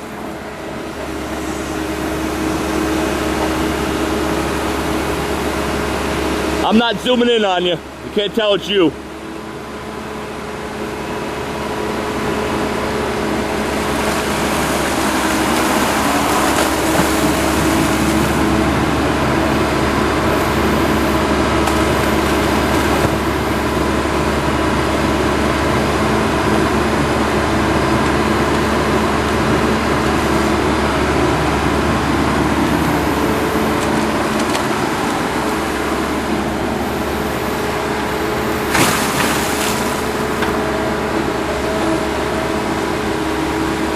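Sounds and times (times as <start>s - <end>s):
heavy equipment engine running: 0.0s - 43.9s.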